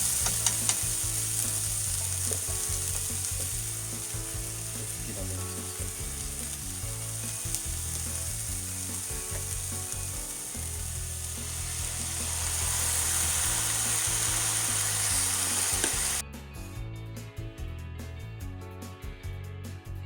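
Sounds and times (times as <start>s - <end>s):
vegetables sizzling in frying pan: 0.0s - 16.2s
background music: 0.0s - 20.0s
spatula ticks: 0.2s - 1.0s.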